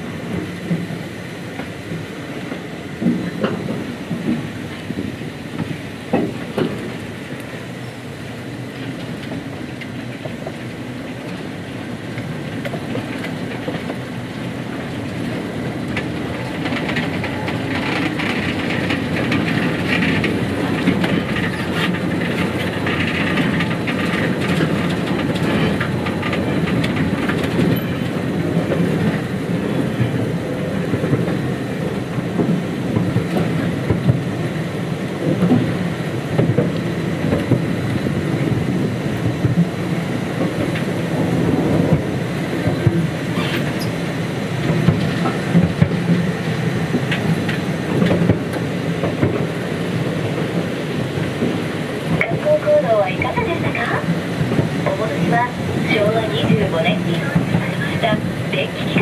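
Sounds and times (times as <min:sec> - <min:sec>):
small train rattling on track: 0:00.0 - 0:59.0
wheels clicking over rail joints: 0:08.6 - 0:59.0.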